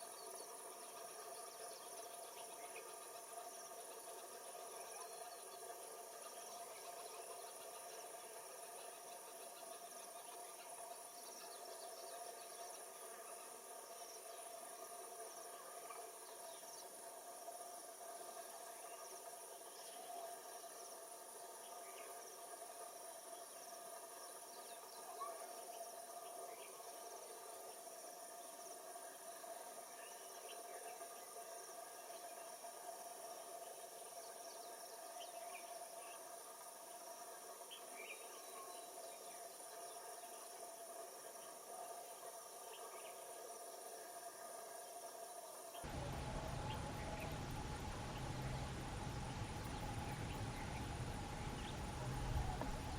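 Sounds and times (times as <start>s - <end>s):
crickets chorus: 0.0s - 52.9s
short insect chirps: 45.7s - 52.9s.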